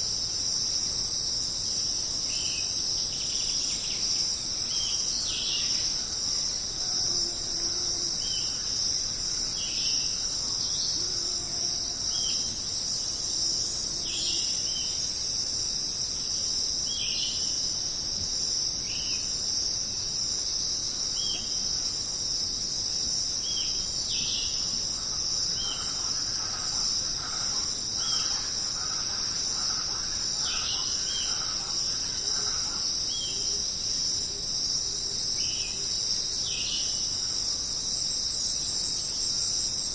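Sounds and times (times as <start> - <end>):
crickets shrilling: 0.0 - 39.9.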